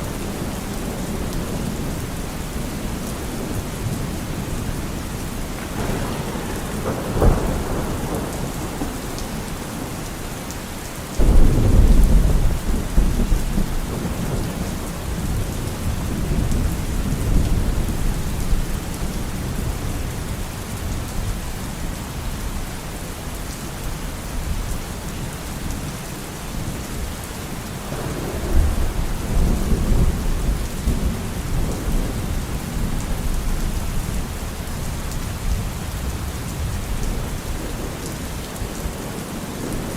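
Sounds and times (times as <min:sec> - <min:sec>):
steady rain: 0:00.0 - 0:39.9
thunder rolling: 0:05.3 - 0:10.0, 0:11.2 - 0:18.8, 0:27.9 - 0:33.5.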